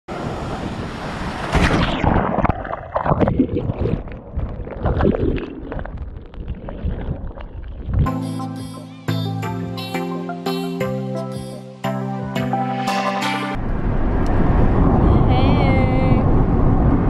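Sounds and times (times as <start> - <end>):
music: 8.1 - 13.6
wind buffeting microphone: 13.6 - 17.0.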